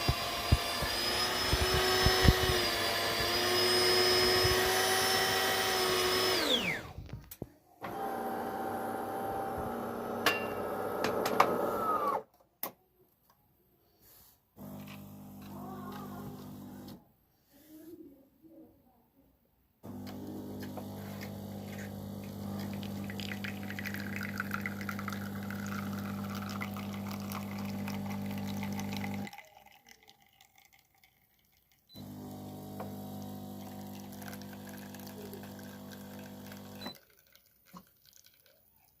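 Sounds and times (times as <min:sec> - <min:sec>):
coffee machine pump humming: 0:00.0 - 0:07.2, 0:07.8 - 0:12.2, 0:14.6 - 0:17.0, 0:19.8 - 0:29.4, 0:31.9 - 0:37.0
liquid pouring into a cup: 0:00.1 - 0:06.8, 0:19.9 - 0:39.0.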